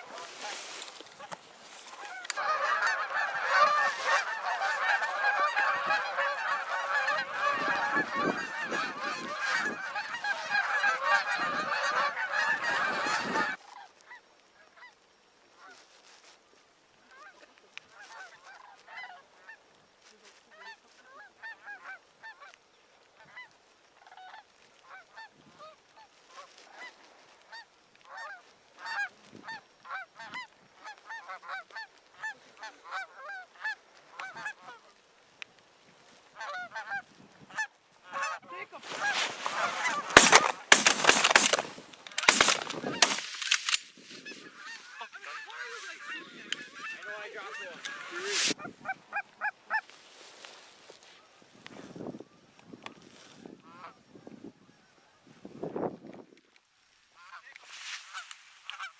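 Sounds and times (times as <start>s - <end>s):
geese honking: 0.0s - 15.0s, 17.1s - 19.6s, 20.4s - 35.0s, 36.2s - 51.2s, 57.2s - 58.9s
loud sharp blasts: 39.8s - 43.5s.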